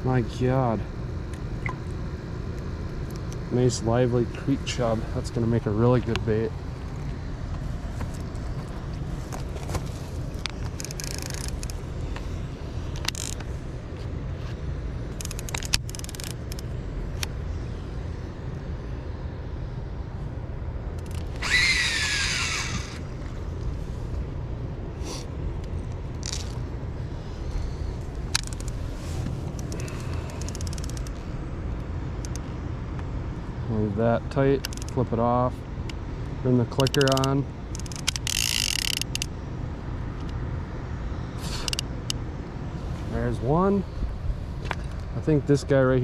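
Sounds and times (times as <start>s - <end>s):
fishing reel spool whirring: 10.8s - 11.8s, 13.0s - 13.4s, 15.1s - 16.7s, 21.0s - 23.3s, 29.5s - 31.2s, 36.9s - 39.3s.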